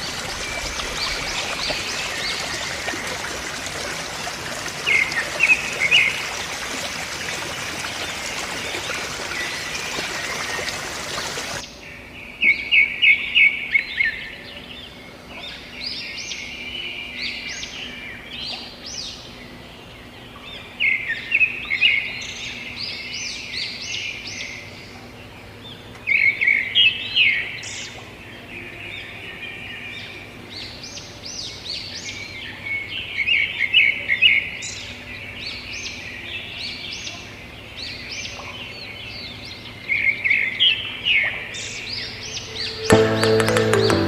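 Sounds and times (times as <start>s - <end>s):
birds chirping: 0.0s - 16.8s, 36.7s - 44.0s.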